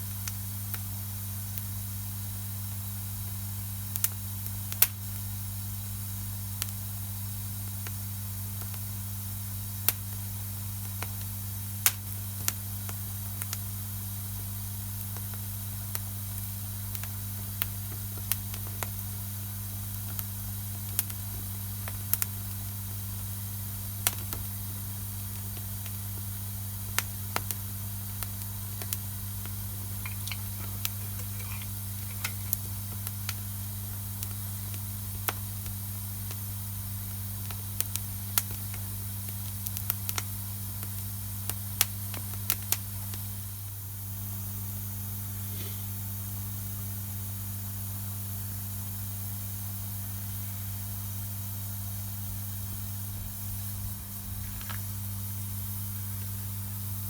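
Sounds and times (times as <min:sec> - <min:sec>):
steady hiss and low hum: 0:00.0 - 0:57.0
campfire crackling and popping: 0:11.0 - 0:13.7, 0:15.1 - 0:19.1, 0:19.9 - 0:23.0, 0:24.0 - 0:43.3.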